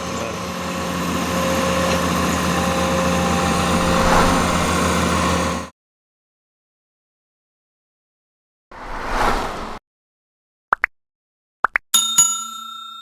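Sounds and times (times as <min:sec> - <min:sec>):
excavator diesel engine droning: 0:00.0 - 0:05.7.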